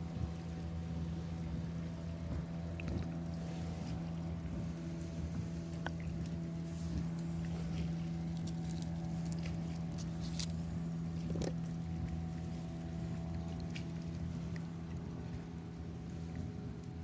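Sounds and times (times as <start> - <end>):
low engine drone: 0.0 - 17.0
light clicks and crackles: 5.7 - 12.2.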